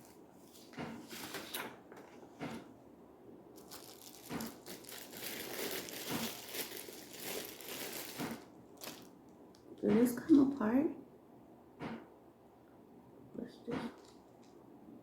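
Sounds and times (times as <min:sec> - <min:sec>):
packaging crinkling and rustling: 0:03.6 - 0:09.6.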